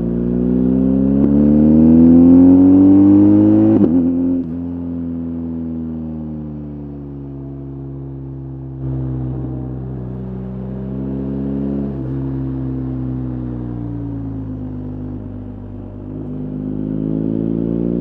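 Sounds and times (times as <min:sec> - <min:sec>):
motorcycle engine revving: 0:00.0 - 0:04.7, 0:08.8 - 0:18.0.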